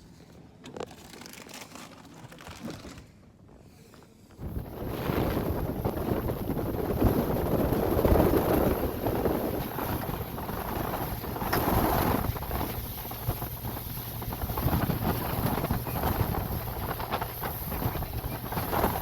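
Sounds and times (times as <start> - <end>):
boat engine rumble: 4.1 - 19.0
wind buffeting microphone: 4.4 - 19.0.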